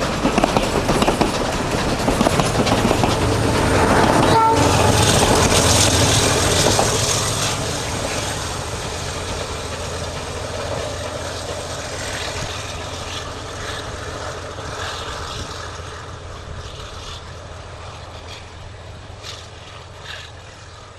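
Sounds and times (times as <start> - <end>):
steam train rumble: 0.0 - 20.9.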